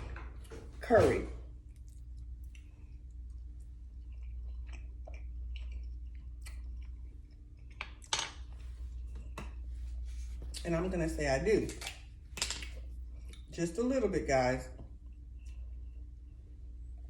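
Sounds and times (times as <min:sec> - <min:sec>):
person chewing food: 0:01.6 - 0:10.7, 0:12.1 - 0:13.6, 0:14.8 - 0:16.5.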